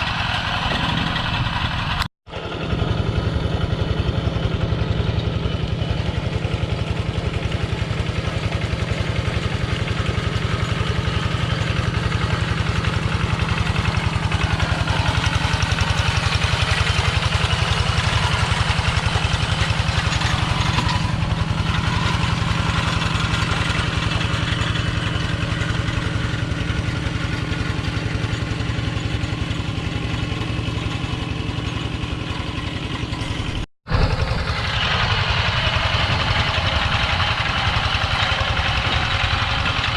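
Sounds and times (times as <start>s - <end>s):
small tractor engine running: 0.0s - 39.9s.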